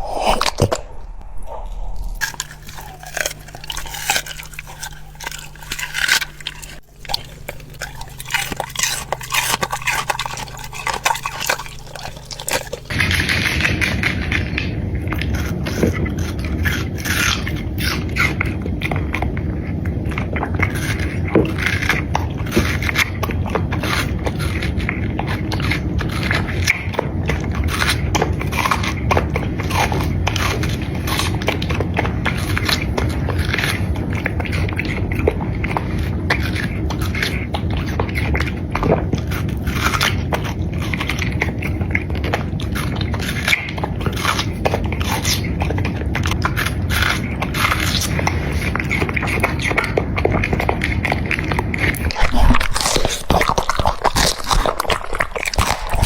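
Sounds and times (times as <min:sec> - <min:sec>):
low background rumble: 0:00.0 - 0:17.8
dog chewing food: 0:00.0 - 0:56.0.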